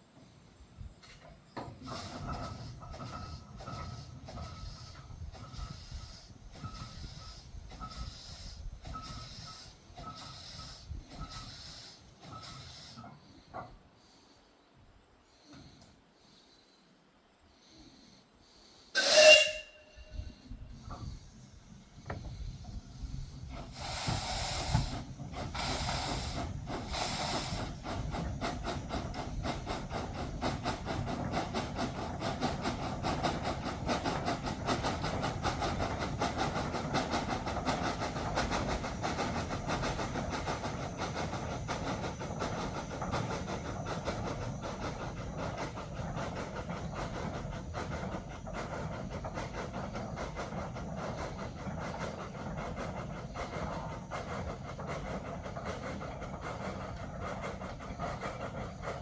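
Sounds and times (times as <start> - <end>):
steam locomotive whistle: 18.9 - 20.5
locomotive exhaust blasts: 18.9 - 59.0.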